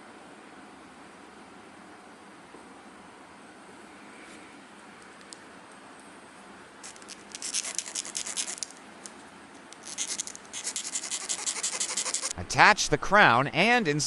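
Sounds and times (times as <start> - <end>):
metal file scraping: 6.8 - 8.7, 9.8 - 12.4.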